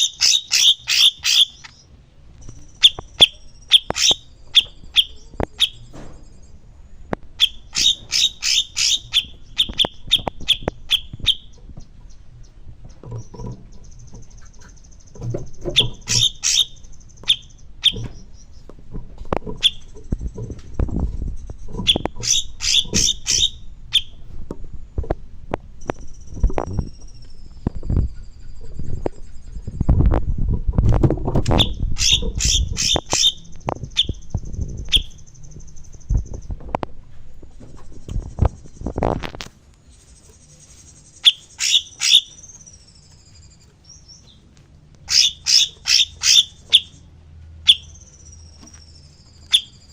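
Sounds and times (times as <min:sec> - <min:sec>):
high thin bird trill: 0:00.0 - 0:01.9, 0:02.5 - 0:06.6, 0:07.4 - 0:11.6, 0:39.9 - 0:44.4
songbird ringing chirps: 0:00.0 - 0:18.8, 0:19.4 - 0:24.3, 0:25.7 - 0:30.0, 0:31.5 - 0:36.6, 0:39.8 - 0:49.9.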